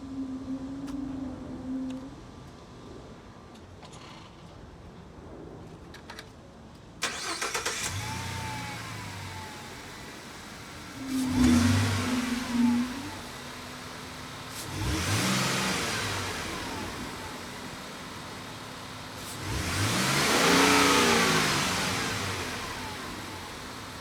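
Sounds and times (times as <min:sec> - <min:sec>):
van engine starting and revving: 0:07.0 - 0:24.0.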